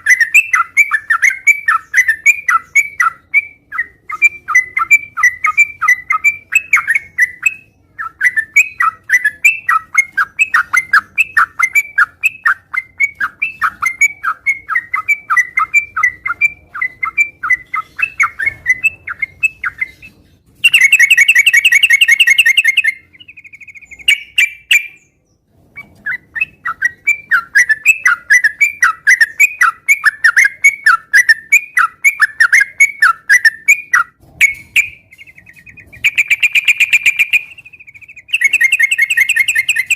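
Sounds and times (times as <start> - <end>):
bird chattering song: 0.0 - 39.9
loud dense bird trill: 0.0 - 39.9.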